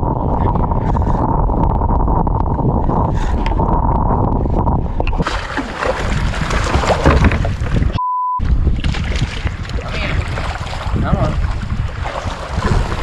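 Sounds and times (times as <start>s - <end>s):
wind buffeting microphone: 0.0s - 13.0s
water sloshing around kayak: 5.0s - 8.0s, 8.6s - 13.0s
censor bleep: 8.0s - 8.4s.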